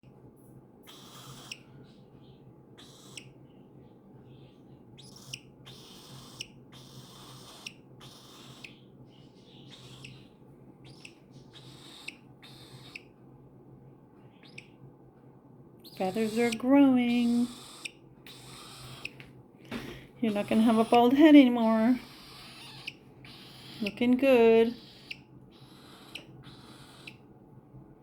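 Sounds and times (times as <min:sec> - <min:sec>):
steady low hum: 0:00.0 - 0:28.0
cockatiel raspy hissing calls: 0:00.9 - 0:01.7, 0:02.8 - 0:03.3, 0:05.0 - 0:08.8, 0:09.6 - 0:10.2, 0:10.8 - 0:13.1, 0:17.2 - 0:19.2, 0:22.0 - 0:23.9, 0:24.8 - 0:27.2.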